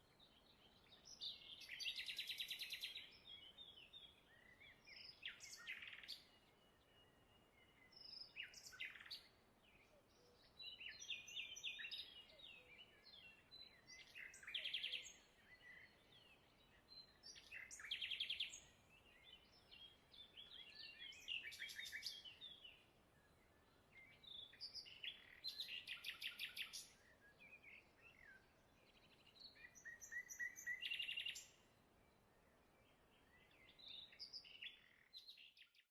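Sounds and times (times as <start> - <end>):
faint outdoor hiss: 0.0 - 35.8
songbird chirps and trills: 0.0 - 35.9.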